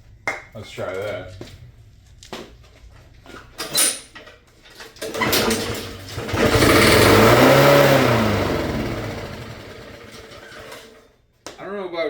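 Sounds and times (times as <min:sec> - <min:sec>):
lawnmower engine starting and revving: 0:05.0 - 0:11.0.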